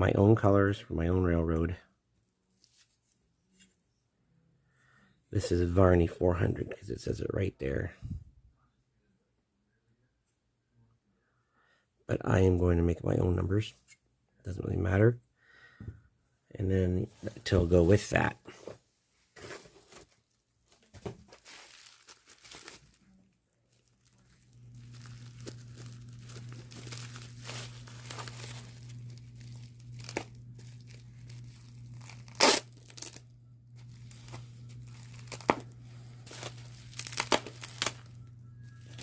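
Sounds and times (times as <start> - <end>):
packaging tearing and crinkling: 21.2 - 23.1, 23.8 - 38.2
steady low hum: 23.9 - 39.0.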